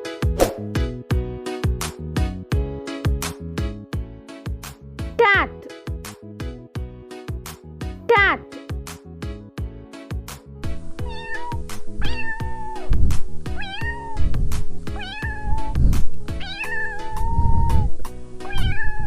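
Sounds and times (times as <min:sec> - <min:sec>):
background music with beat: 0:00.0 - 0:18.4
cat meowing: 0:11.0 - 0:19.0.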